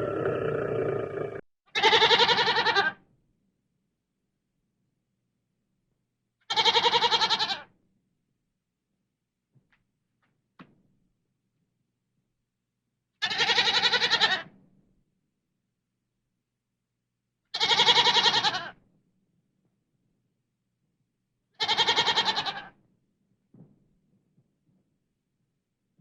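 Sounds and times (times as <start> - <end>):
goat or sheep bleating: 1.8 - 2.9, 6.5 - 7.6, 21.6 - 22.7.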